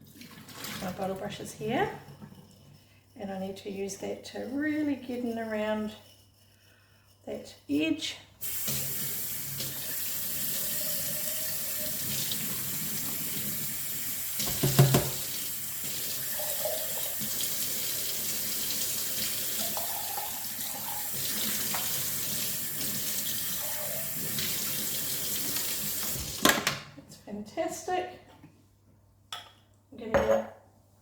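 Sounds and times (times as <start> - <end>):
tap water running into sink: 0.0 - 1.2, 8.4 - 26.7.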